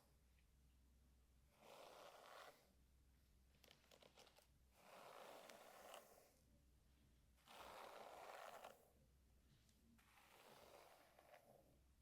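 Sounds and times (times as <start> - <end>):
brush swishing through hair: 4.8 - 6.3, 10.0 - 11.5.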